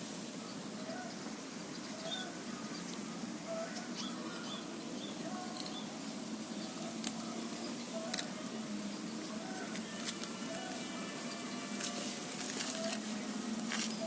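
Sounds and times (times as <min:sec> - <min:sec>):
dove cooing: 0:03.4 - 0:04.6, 0:09.3 - 0:14.0.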